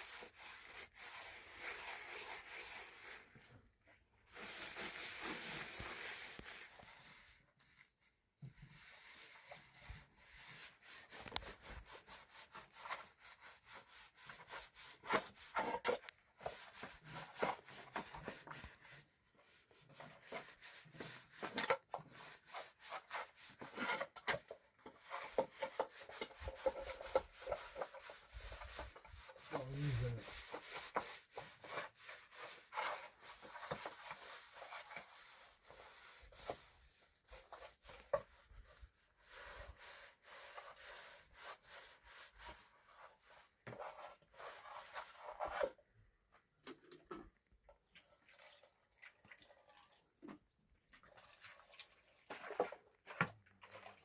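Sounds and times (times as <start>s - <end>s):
hand rubbing strokes on wood: 0.0s - 3.4s, 4.3s - 7.9s, 8.6s - 15.7s, 16.4s - 21.5s, 25.0s - 45.6s.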